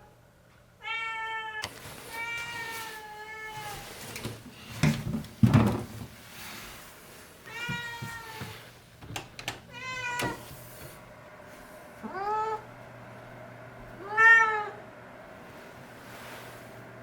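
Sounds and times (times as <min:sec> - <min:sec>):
cat meowing: 0:07.5 - 0:08.4, 0:09.7 - 0:10.4, 0:12.0 - 0:12.6, 0:14.0 - 0:14.8.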